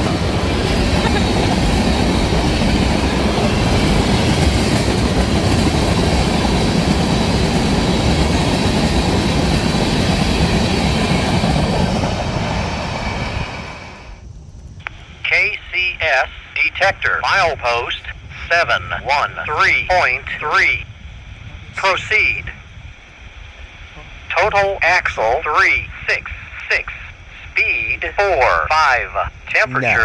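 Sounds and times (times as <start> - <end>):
train wheels rushing on rail: 0.0 - 15.2.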